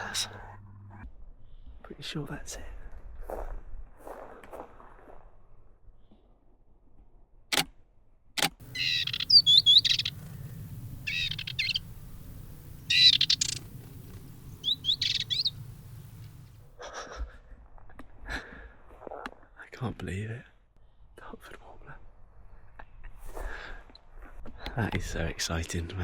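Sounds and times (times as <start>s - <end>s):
warbler singing high phrases: 8.6s - 16.6s.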